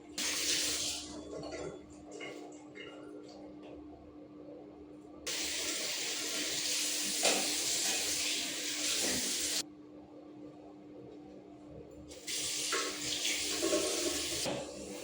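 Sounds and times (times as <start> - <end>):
water running from tap: 0.2 - 1.6, 5.3 - 9.6, 12.1 - 15.0.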